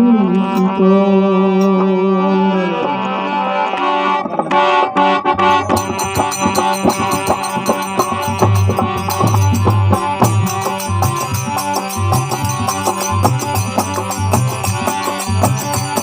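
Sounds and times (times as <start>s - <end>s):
reed-like melody: 0.0s - 16.0s
steady drum rhythm: 4.2s - 16.0s.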